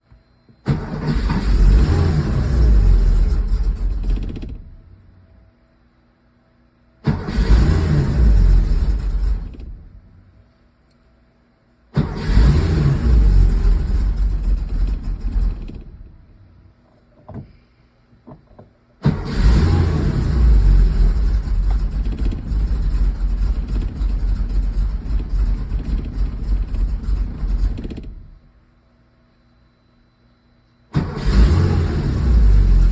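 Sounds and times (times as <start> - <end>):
car engine starting and running rough: 0.7 - 5.0, 7.0 - 10.1, 12.0 - 16.4, 19.0 - 28.5, 30.9 - 32.9.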